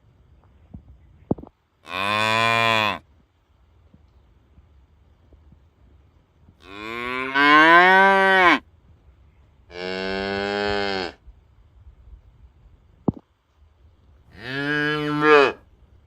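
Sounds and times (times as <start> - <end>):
cattle mooing: 14.4 - 15.6.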